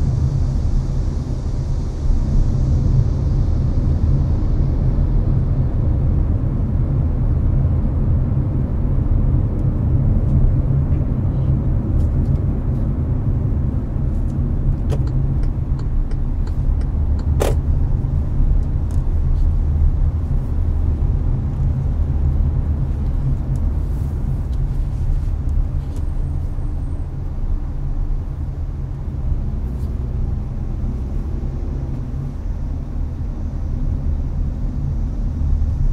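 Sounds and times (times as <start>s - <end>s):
air conditioner blowing: 0.0s - 35.9s
road and engine rumble: 0.0s - 35.9s
sharp click: 14.8s - 17.6s.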